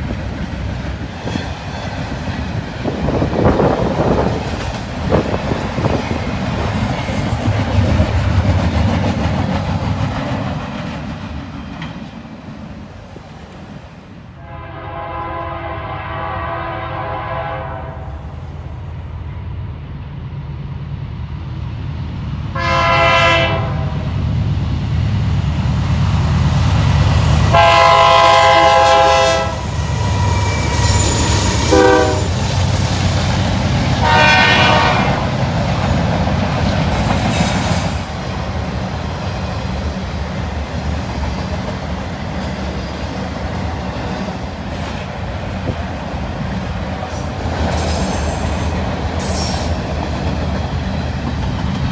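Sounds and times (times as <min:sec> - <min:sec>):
moving train rumble: 0:00.0 - 0:51.9
train horn blasts: 0:14.4 - 0:18.3, 0:22.5 - 0:24.1, 0:27.5 - 0:32.4, 0:34.0 - 0:35.4.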